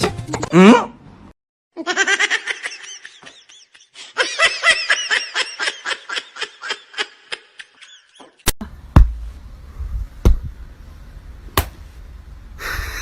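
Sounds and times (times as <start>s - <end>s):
high-pitched laughter: 1.8s - 8.4s.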